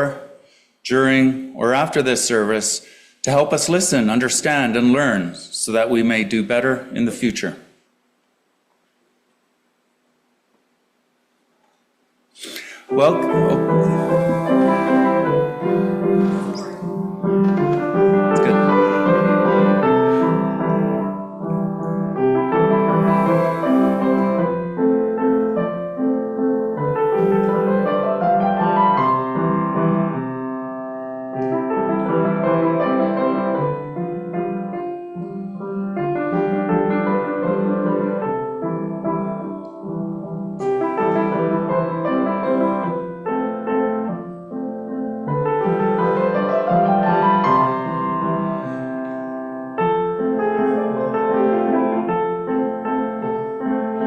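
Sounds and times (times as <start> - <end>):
solo piano playing slow chords: 12.9 - 54.0.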